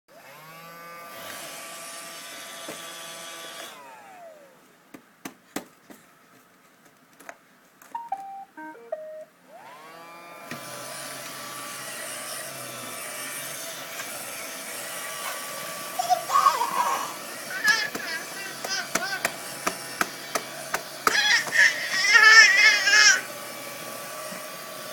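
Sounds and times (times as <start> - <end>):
vacuum cleaner motor running: 0.1 - 4.6, 9.5 - 24.9.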